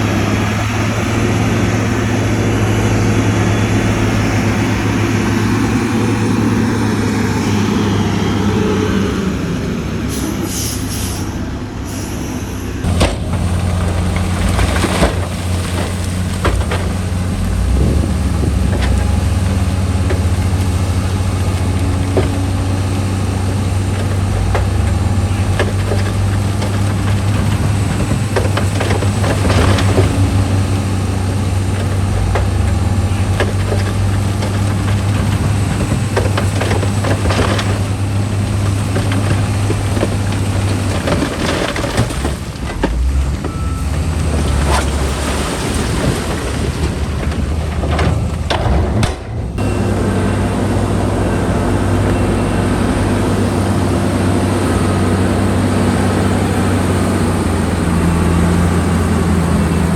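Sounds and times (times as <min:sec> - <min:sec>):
diesel engine humming: 0:00.0 - 0:59.9
clanks and knocks: 0:12.8 - 0:49.9.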